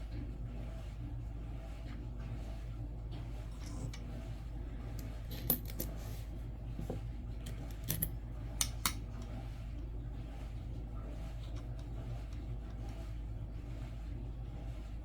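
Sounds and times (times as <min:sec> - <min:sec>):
steady low hum: 0:00.0 - 0:15.0
coins clicking: 0:05.3 - 0:06.0, 0:07.7 - 0:09.0.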